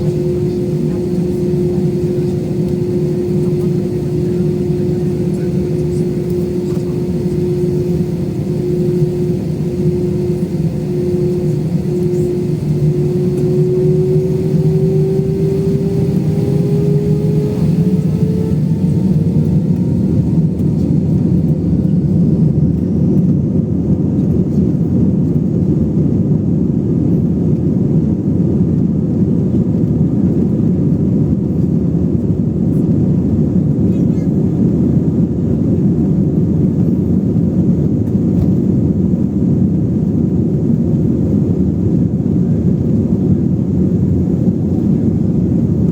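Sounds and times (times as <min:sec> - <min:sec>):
engine whine rising in pitch: 0:00.0 - 0:24.3
airliner engines rumbling in cabin: 0:00.0 - 0:45.9.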